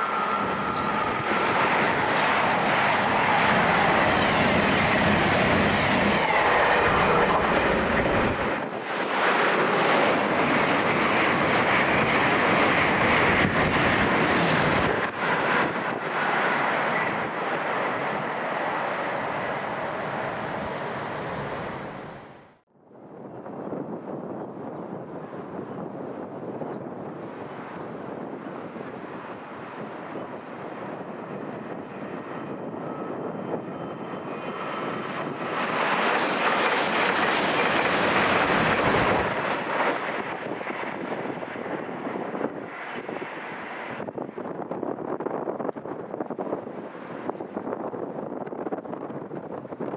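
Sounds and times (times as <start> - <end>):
train rushing past: 0.0 - 22.6, 27.3 - 44.4.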